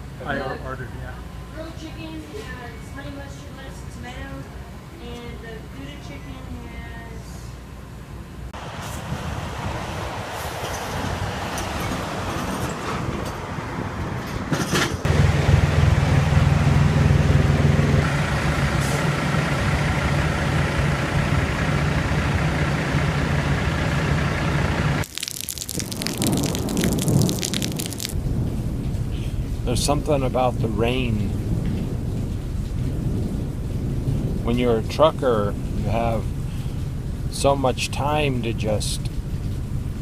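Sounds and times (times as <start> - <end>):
road noise: 0.0 - 40.0
heavy truck engine hum: 7.7 - 25.0.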